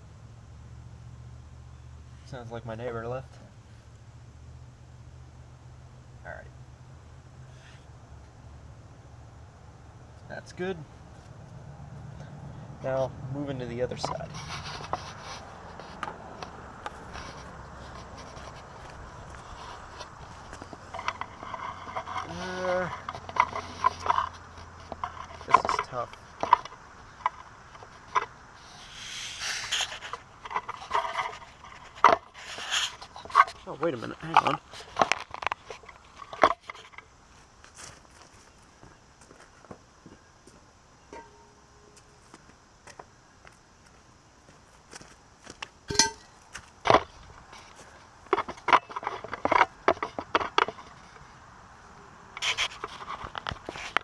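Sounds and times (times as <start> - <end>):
scraping on car body: 13.9 - 37.0, 52.4 - 54.0
sharp clicks and knocks: 22.9 - 28.4.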